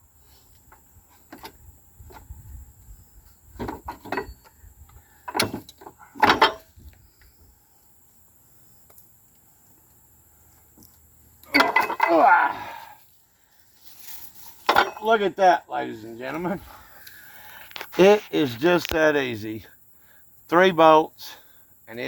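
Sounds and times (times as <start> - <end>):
metal parts knocking and clunking: 3.6 - 4.5, 5.2 - 6.8, 11.4 - 12.2, 14.6 - 15.1.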